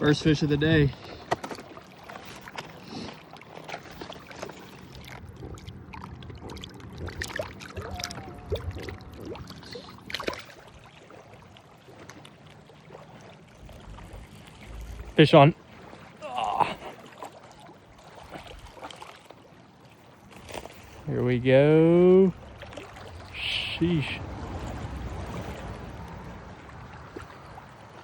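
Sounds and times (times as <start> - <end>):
water sloshing and trickling: 0.0 - 28.0
fishing gear clicks and knocks: 1.0 - 2.8.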